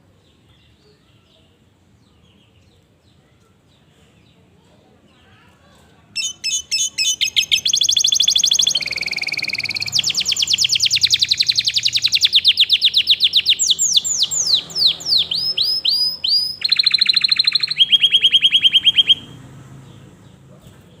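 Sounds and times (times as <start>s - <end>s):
canary singing trills: 6.2s - 20.4s.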